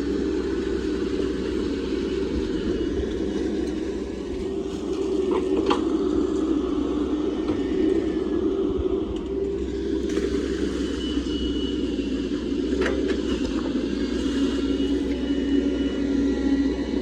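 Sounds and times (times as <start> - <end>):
diesel engine running: 0.0 - 17.0
faint high whine: 0.0 - 17.0.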